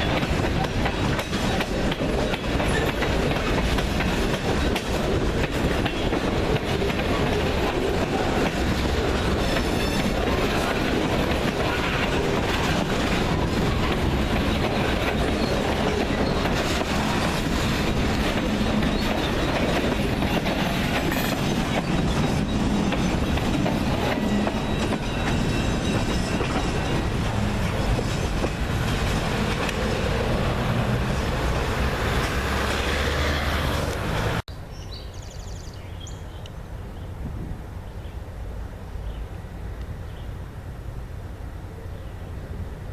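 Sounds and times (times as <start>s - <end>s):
steel wheels clattering on rails: 0.0s - 33.0s
freight train cars rolling: 0.0s - 34.4s.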